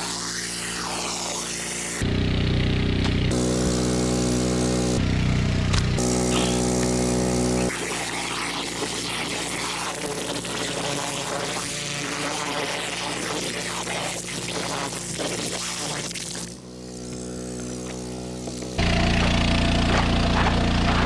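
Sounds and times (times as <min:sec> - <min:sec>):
pressure washer engine running: 0:00.0 - 0:21.0
hissing spray: 0:06.0 - 0:18.8.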